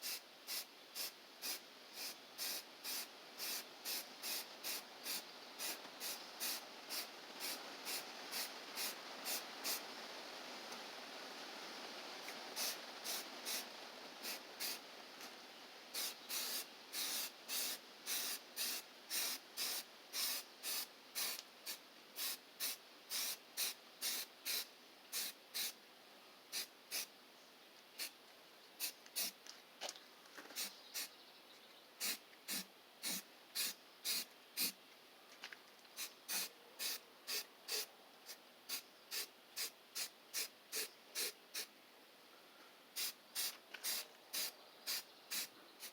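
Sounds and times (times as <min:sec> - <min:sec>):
spray can hissing bursts: 0:00.0 - 0:09.8, 0:12.2 - 0:14.8, 0:15.9 - 0:25.8, 0:26.5 - 0:27.1, 0:28.8 - 0:29.4, 0:30.6 - 0:31.1, 0:32.0 - 0:34.8, 0:36.0 - 0:37.9, 0:38.7 - 0:41.7, 0:43.0 - 0:45.9.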